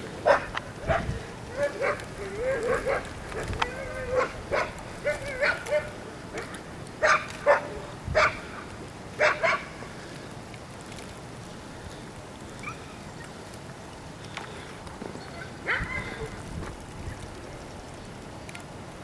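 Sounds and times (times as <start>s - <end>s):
steady hiss: 0.0s - 19.0s
dog barking: 0.2s - 8.4s, 9.2s - 9.7s, 15.6s - 16.2s.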